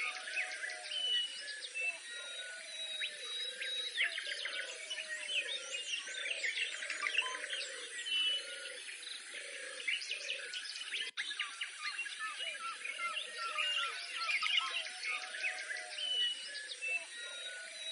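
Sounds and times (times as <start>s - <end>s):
small birds singing and chirping: 0.0s - 17.9s.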